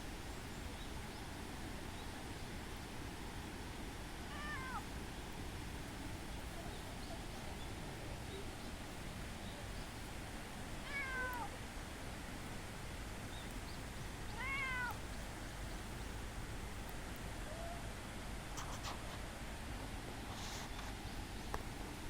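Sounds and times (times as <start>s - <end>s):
cat meowing: 4.3s - 4.8s, 10.8s - 11.5s, 14.3s - 15.0s.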